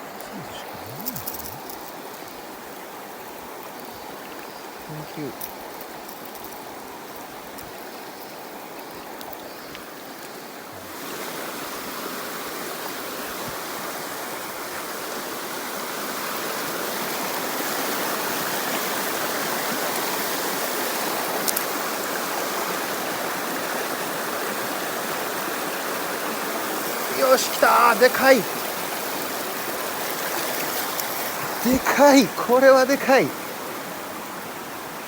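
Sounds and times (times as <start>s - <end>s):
stream water rushing over rocks: 0.0s - 35.0s.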